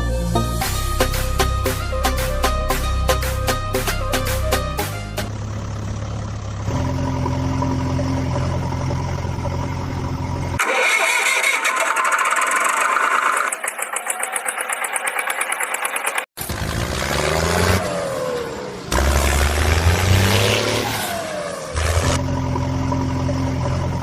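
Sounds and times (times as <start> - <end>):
vehicle engine humming: 0.0 - 24.0
rattling mechanical sound: 6.2 - 16.6.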